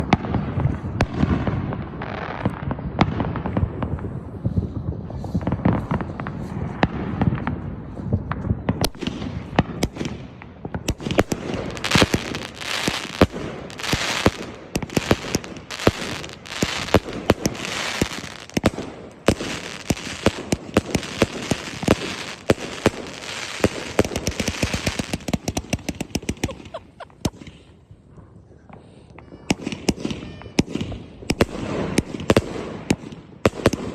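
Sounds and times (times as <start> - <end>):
fireworks shots and bursts: 0.0 - 28.0, 28.6 - 33.9
firework crackling: 3.4 - 27.7.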